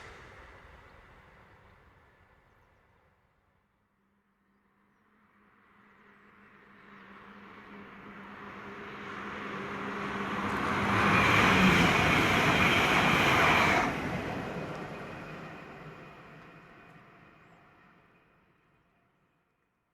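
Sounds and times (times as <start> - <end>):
train passing at speed: 0.0 - 2.8, 5.6 - 18.6.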